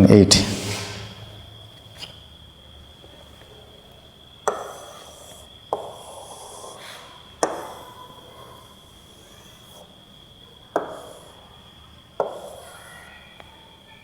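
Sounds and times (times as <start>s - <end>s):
pen taps and scratchy strokes: 4.5s - 9.9s, 10.8s - 11.4s, 12.2s - 13.0s.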